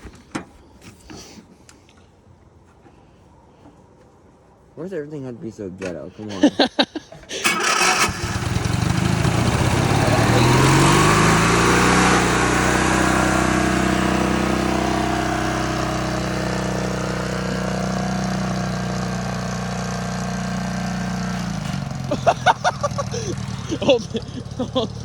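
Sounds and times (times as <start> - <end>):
lawnmower engine revving: 6.4 - 25.0.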